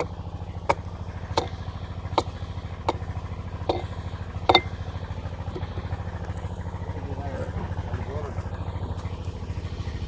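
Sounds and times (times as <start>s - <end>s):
sawmill engine pulsing: 0.0s - 10.0s
sharp knocks: 0.7s - 4.9s.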